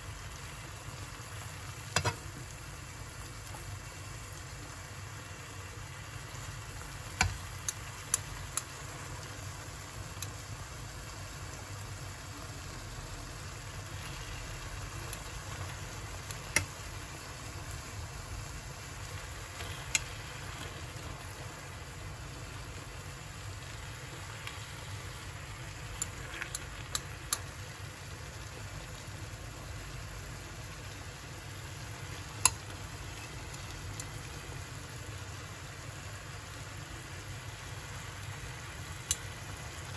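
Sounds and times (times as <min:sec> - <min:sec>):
food sizzling in hot oil: 0:00.0 - 0:39.9
utensil clicking against pan: 0:19.6 - 0:20.1, 0:26.0 - 0:27.5.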